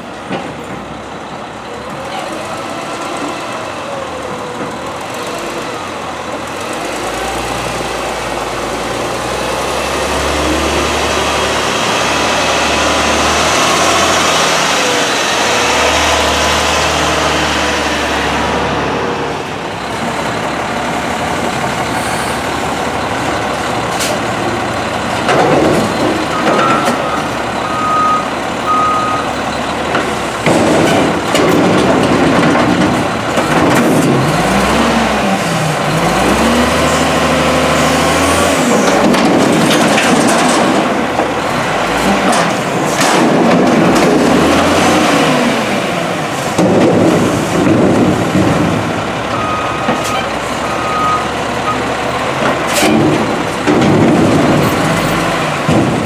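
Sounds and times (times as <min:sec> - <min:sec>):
garbage truck diesel engine revving: 0:01.5 - 0:56.0
back-up alarm beeping: 0:26.3 - 0:29.6, 0:49.4 - 0:50.0, 0:50.7 - 0:51.9.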